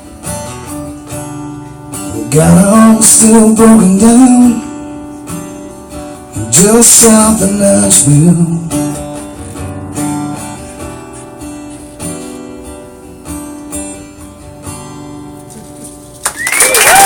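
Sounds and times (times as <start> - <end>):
acoustic guitar strumming: 0.0 - 16.2
applause: 16.1 - 17.0.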